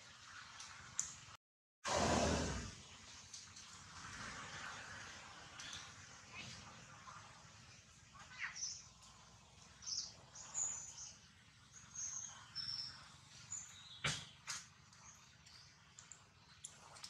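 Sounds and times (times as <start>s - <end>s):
birds chirping faintly: 4.6s - 17.0s.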